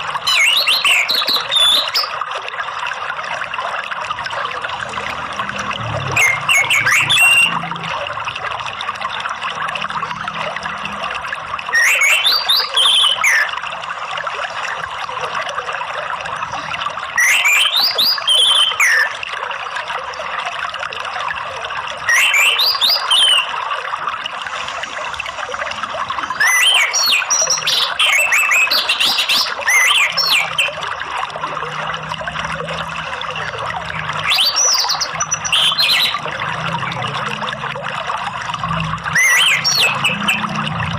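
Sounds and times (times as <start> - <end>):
running water: 0.0 - 40.9
thrush singing whistles: 0.2 - 2.1, 6.2 - 7.6, 11.7 - 13.5, 17.2 - 19.1, 22.1 - 23.6, 26.3 - 30.8, 34.2 - 36.2, 39.1 - 40.6.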